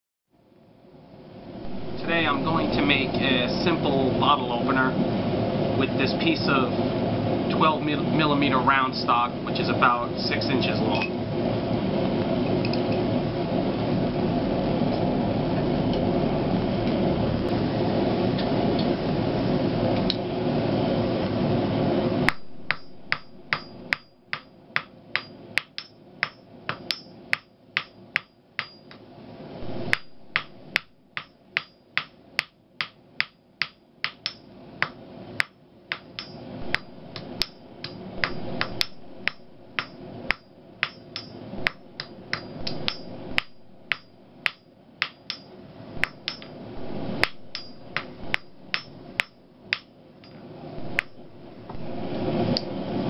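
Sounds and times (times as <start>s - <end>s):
hammer striking steel on anvil: 22.3s - 29.0s, 29.9s - 46.5s, 47.2s - 51.2s.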